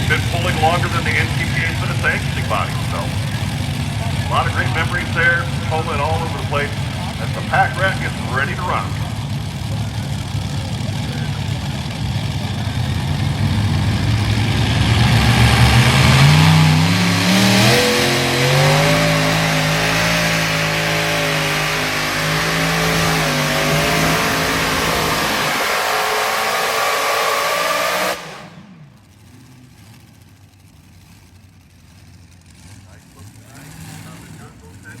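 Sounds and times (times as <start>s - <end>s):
pulling tractor engine revving: 0.0s - 35.0s.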